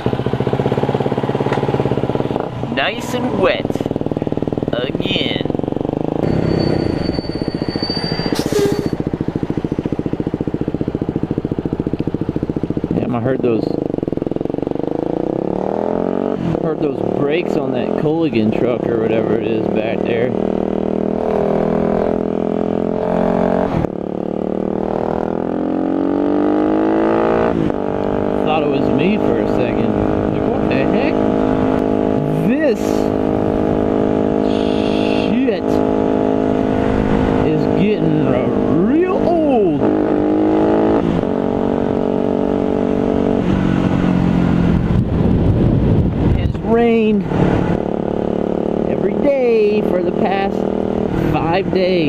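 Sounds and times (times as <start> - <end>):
motorcycle engine accelerating: 0.0 - 52.0
low wind rumble: 33.0 - 34.5, 39.6 - 49.3.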